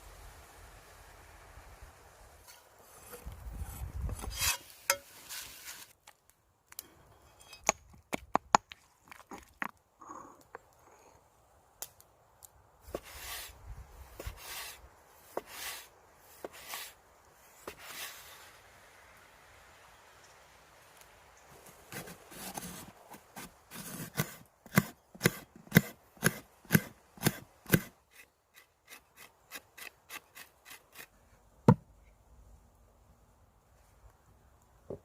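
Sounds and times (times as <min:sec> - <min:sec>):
rubbing and scraping: 0:02.5 - 0:06.0, 0:21.6 - 0:26.4.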